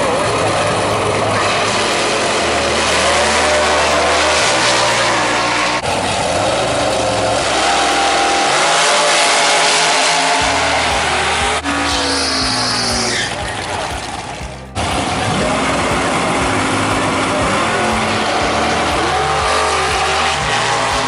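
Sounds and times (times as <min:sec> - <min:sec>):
drag racing car engines revving: 0:00.0 - 0:21.0.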